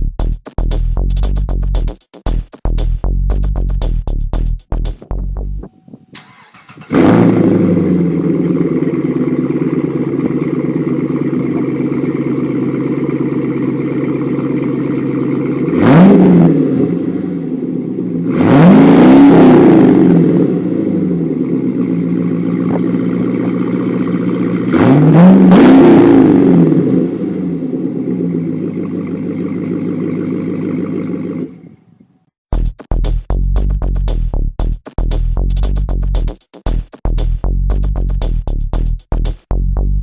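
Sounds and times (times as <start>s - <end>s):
car engine starting and idling: 5.0s - 31.7s
car engine revving: 6.3s - 31.5s.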